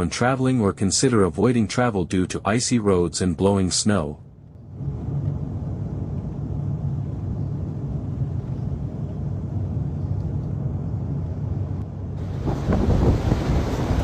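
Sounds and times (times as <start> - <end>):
low vehicle rumble: 3.9 - 14.0
wind on microphone: 12.2 - 14.0.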